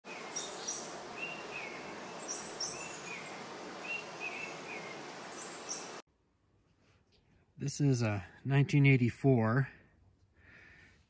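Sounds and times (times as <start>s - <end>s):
small birds chirping: 0.1s - 6.0s
steady hiss: 0.1s - 6.0s.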